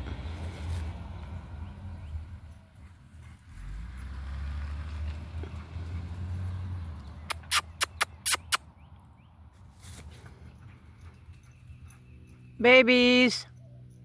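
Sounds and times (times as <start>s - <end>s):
sharp clicks: 7.3s - 8.6s.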